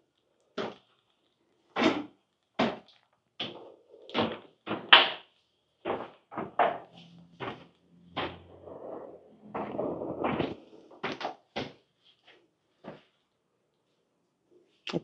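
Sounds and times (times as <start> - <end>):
footsteps going down stairs: 5.8 - 13.1.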